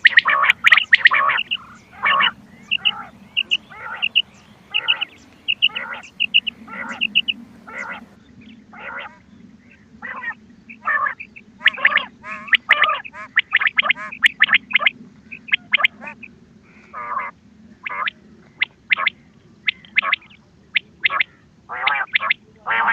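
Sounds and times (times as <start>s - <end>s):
quail calls: 0.0s - 9.3s, 10.0s - 22.9s
low hum: 0.0s - 10.7s.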